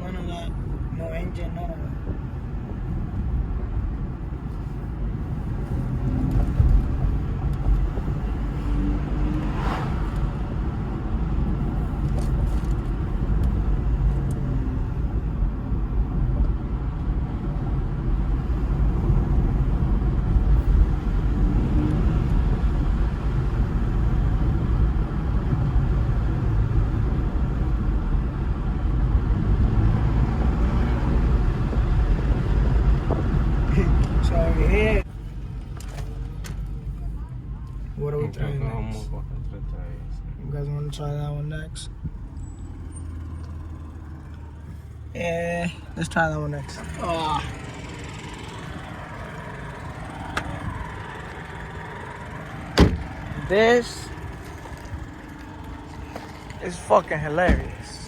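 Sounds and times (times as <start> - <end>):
road and tyre noise in car: 0.0 - 58.0
brief swish: 9.4 - 10.3.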